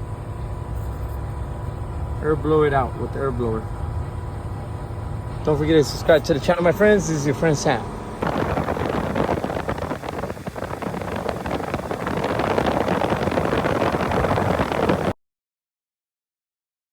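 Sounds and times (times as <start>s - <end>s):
air blower rushing: 8.0s - 15.2s
wind buffeting on microphone: 8.2s - 15.2s.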